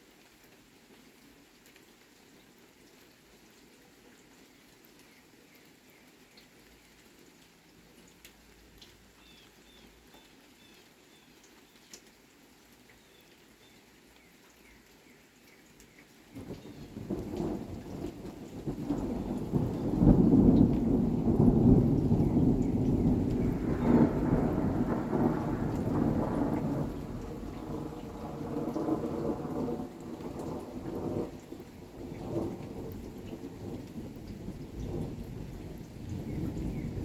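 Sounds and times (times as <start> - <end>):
light rain: 0.0 - 37.0
faint bird chirps: 9.2 - 12.0
thunder rumbling: 16.4 - 37.0.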